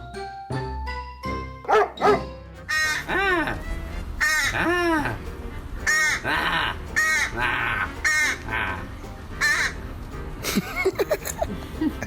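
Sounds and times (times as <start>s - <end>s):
crow cawing: 2.7s - 3.1s, 4.2s - 4.6s, 7.0s - 8.5s, 9.4s - 9.8s.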